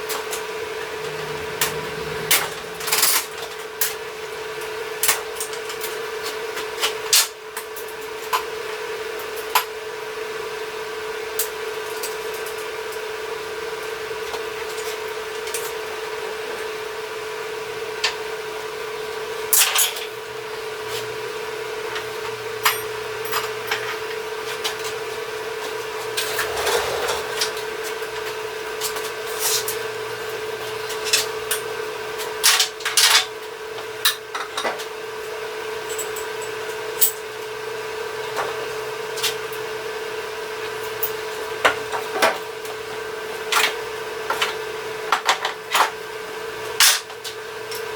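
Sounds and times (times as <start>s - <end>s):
steady hum: 0.0s - 5.1s.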